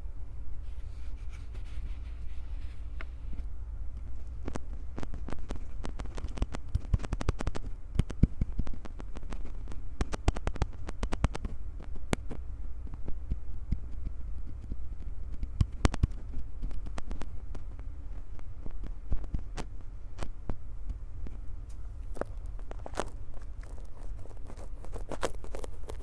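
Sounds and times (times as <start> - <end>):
hands rubbing on microphones: 0.6 - 3.5.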